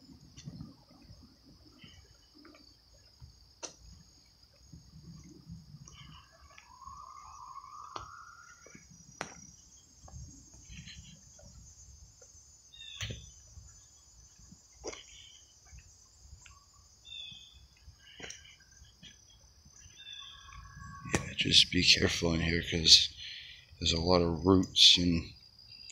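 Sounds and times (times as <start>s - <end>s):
crickets and insects chirring: 0.0s - 25.9s
footsteps on wooded trail: 0.1s - 21.3s
bird chirps: 5.8s - 24.1s
bird whistle rising: 6.1s - 8.9s.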